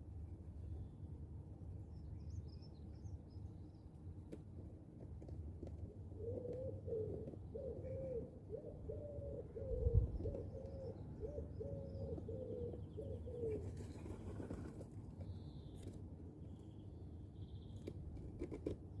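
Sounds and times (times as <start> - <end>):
small birds chirping: 1.9 - 4.4, 6.2 - 18.1
pigeon cooing: 6.1 - 14.7.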